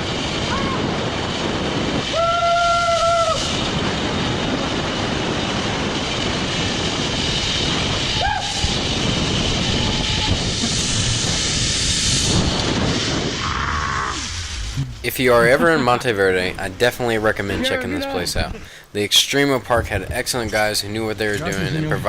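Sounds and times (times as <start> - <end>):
zip-line trolley running on cable: 0.0 - 14.7
wind rushing over microphone: 0.0 - 18.7, 19.7 - 22.0
short steady whine: 7.2 - 16.0.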